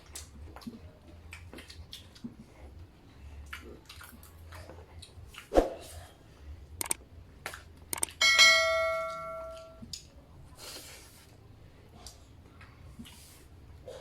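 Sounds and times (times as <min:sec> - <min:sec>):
bell-like metallic ring: 0:08.2 - 0:09.8.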